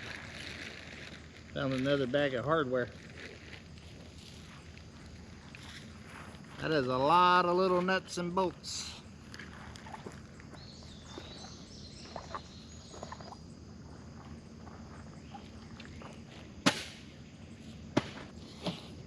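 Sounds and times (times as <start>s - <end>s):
faint high bird chirps: 10.5s - 13.4s.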